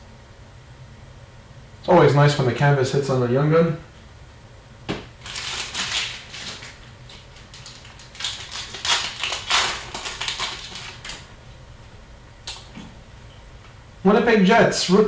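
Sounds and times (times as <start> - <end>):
cards rubbing and flicking: 5.2 - 11.2
wrapper crinkling: 5.2 - 11.3.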